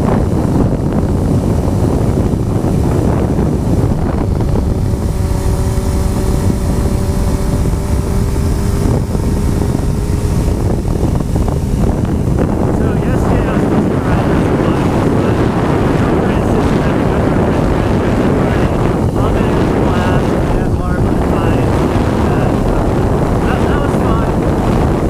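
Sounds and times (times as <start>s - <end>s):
motorcycle engine hum: 0.0s - 25.0s
wind buffeting microphone: 0.0s - 25.0s.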